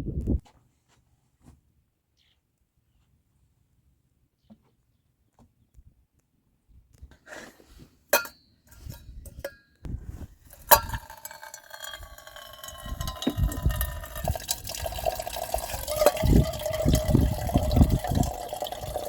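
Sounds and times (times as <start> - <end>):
sharp clinks: 10.5 - 16.8
liquid pouring into container: 10.5 - 19.0.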